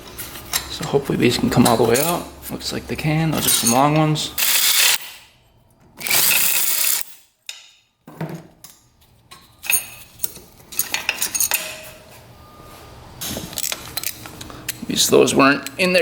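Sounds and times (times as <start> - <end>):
metal bolts clinking and rattling: 1.6 - 2.3, 3.3 - 5.3, 6.0 - 7.8, 8.6 - 12.0
power driver spinning: 4.4 - 5.1, 6.0 - 7.0.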